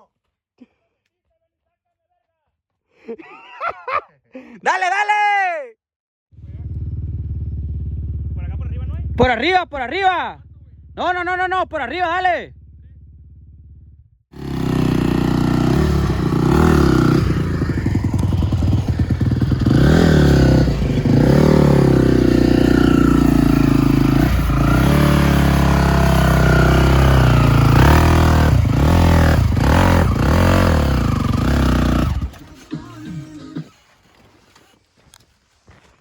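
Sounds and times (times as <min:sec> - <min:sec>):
atv engine revving: 0:06.4 - 0:33.5.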